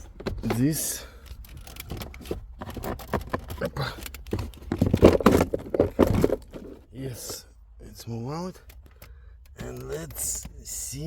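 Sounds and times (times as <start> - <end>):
plastic and metal parts handled: 1.3 - 6.9.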